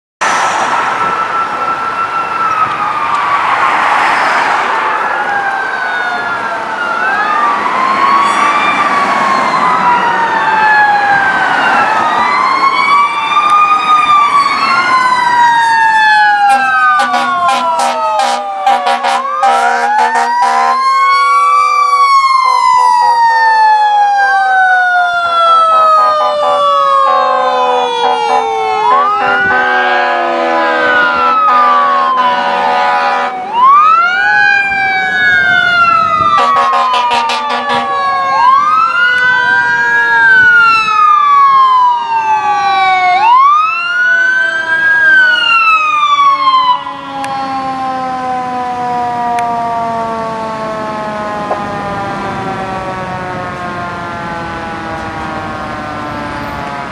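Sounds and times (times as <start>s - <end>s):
sirens wailing: 0.2s - 56.9s
horn blasts: 16.5s - 20.8s, 28.0s - 33.4s, 36.4s - 38.0s.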